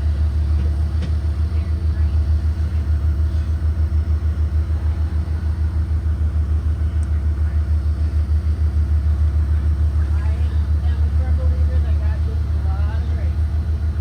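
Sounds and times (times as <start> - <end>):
bus engine running: 0.0 - 14.0.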